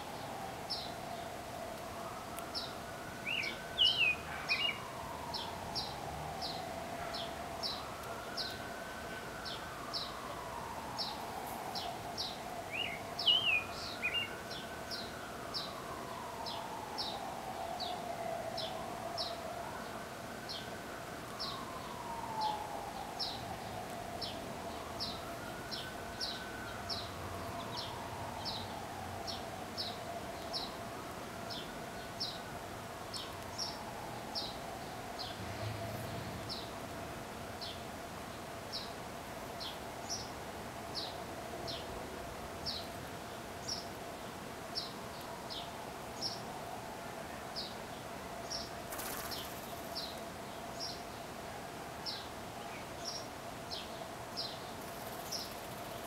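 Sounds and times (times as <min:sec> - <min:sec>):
bird chirping: 0:02.5 - 0:08.6, 0:11.0 - 0:17.2.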